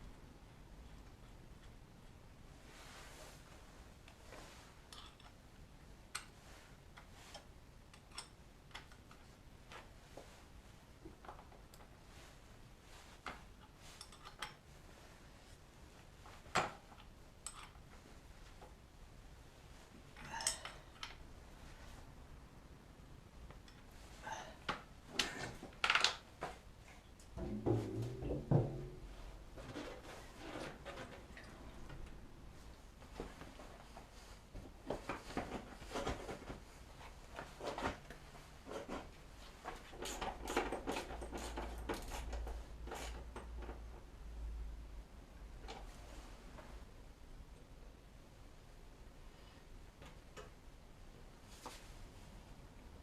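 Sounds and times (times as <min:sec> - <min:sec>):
knocks and scraping clatters: 0:27.2 - 0:32.2, 0:33.0 - 0:44.0.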